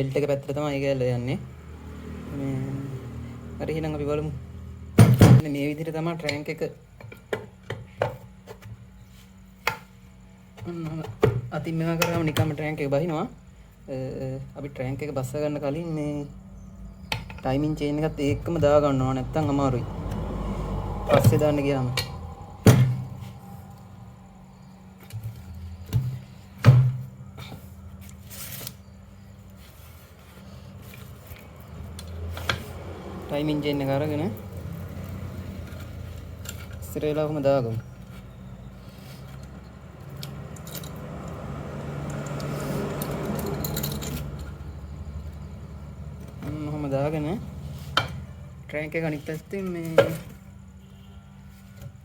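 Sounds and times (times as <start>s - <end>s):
steady low hum: 12.0s - 32.2s
metallic chain clinking and jingling: 40.3s - 41.2s, 42.2s - 44.5s.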